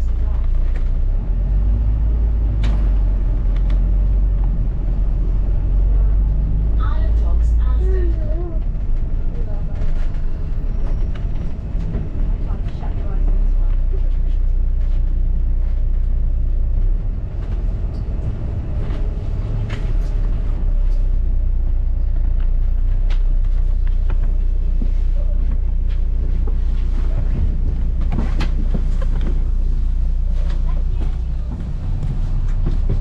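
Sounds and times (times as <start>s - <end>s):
bus rumbling from inside: 0.0s - 33.0s
rattles and knocks: 22.0s - 33.0s.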